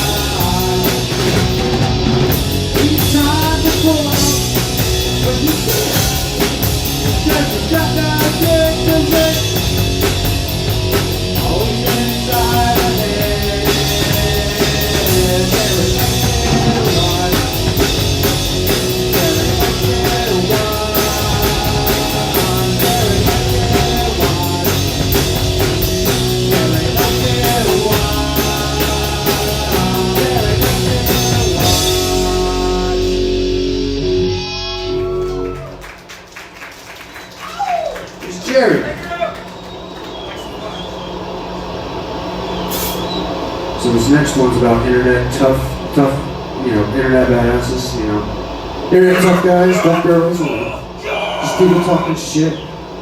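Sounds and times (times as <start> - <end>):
drum and cymbal hits: 0.0 - 34.8
ringing electric guitar: 0.0 - 36.1
live rock band playing: 0.0 - 36.4.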